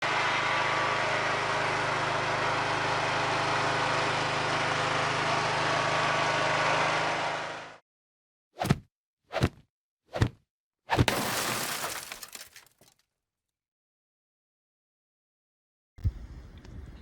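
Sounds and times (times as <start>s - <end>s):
engine running: 0.0s - 7.8s.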